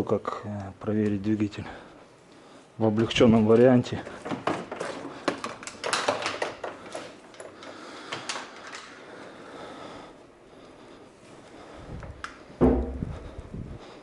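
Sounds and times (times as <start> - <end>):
handling and rustling: 3.0 - 9.0
hand tools clicking and clattering: 4.0 - 9.0.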